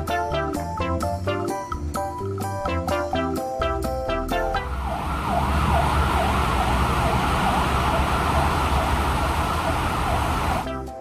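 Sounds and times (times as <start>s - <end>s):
fire engine siren yelping: 4.4s - 10.7s
low engine rumble: 4.6s - 10.7s.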